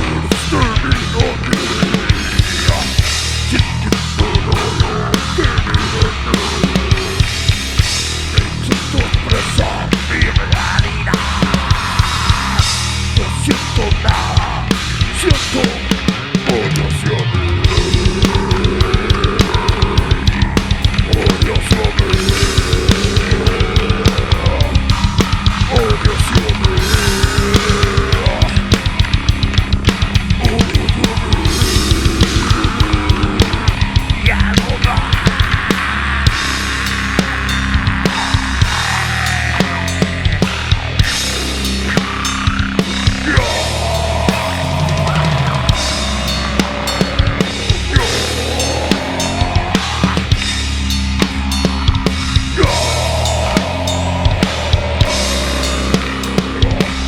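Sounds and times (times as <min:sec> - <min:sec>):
heavy distorted guitars: 0:00.0 - 0:57.0
fast bass drum and snare hits: 0:17.6 - 0:57.0.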